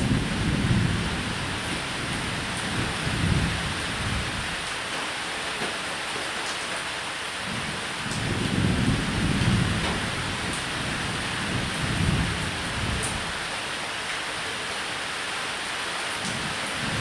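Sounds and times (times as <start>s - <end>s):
thunder rumbling: 0.0s - 4.6s, 8.1s - 13.4s, 16.8s - 17.0s
steady rain: 0.0s - 17.0s.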